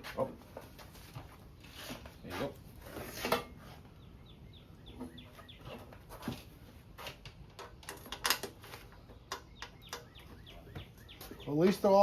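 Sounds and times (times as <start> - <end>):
bird chirping falling notes: 9.0 - 12.0.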